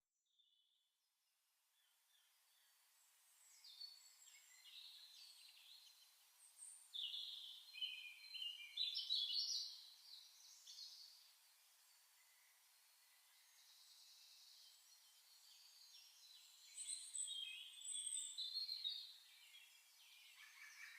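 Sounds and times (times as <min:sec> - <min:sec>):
faint outdoor hiss: 0:00.8 - 0:20.9
birds calling and chirping: 0:16.7 - 0:20.9.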